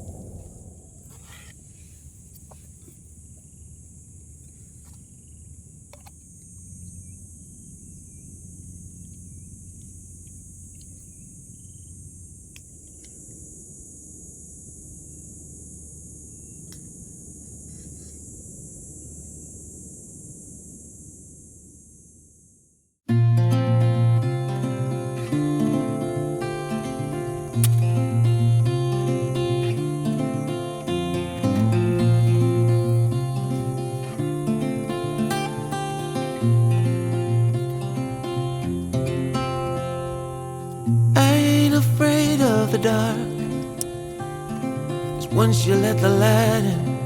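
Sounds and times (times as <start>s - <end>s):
low rumble: 0.0s - 2.3s
insects chirring: 0.0s - 47.0s.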